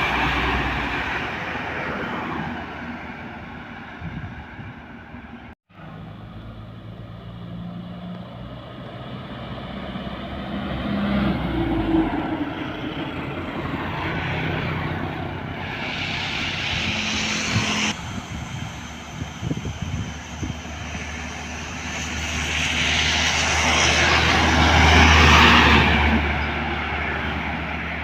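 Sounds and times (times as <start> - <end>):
diesel truck engine passing: 0.0 - 28.0
rushing hiss: 15.4 - 25.8.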